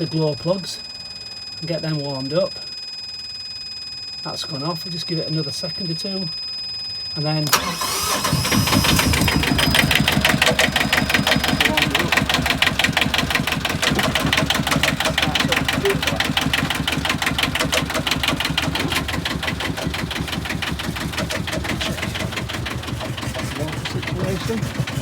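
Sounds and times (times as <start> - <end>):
boat diesel engine idling: 7.4 - 25.0.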